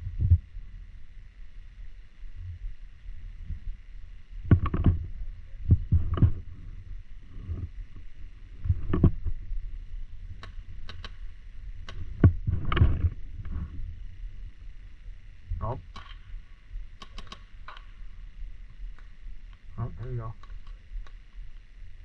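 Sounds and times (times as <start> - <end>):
wind noise on microphone: 0.0 - 0.6, 3.4 - 8.0, 11.9 - 14.5
paintball markers firing: 10.4 - 11.2, 15.9 - 16.2, 17.0 - 18.0.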